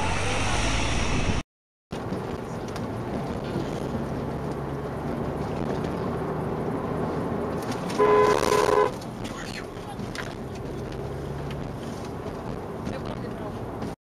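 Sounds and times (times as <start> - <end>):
vehicle engine drone: 0.0 - 14.0
wind rush from moving vehicle: 0.2 - 14.0.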